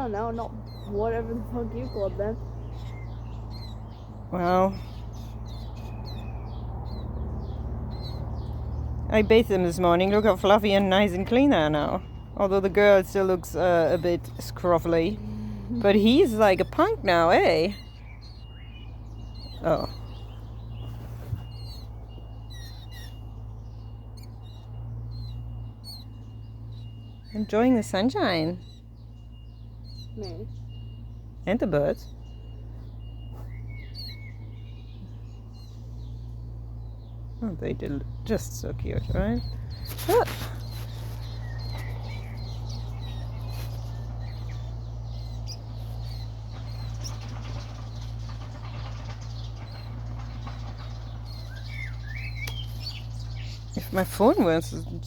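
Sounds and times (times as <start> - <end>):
low steady hum: 0.0 - 55.0
small birds chirping: 0.0 - 55.0
steady low rumble: 0.0 - 55.0
chicks peeping: 29.7 - 55.0.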